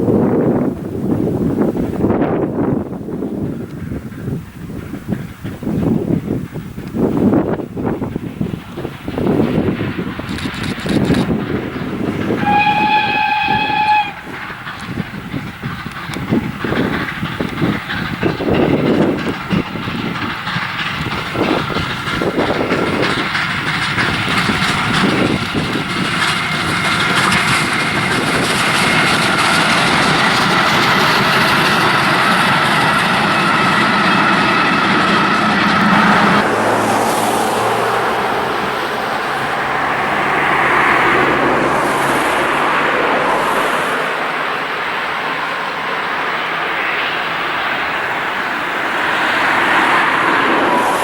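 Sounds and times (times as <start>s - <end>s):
train running on rails: 0.0s - 51.0s
high-pitched wheel squeal: 10.4s - 15.0s.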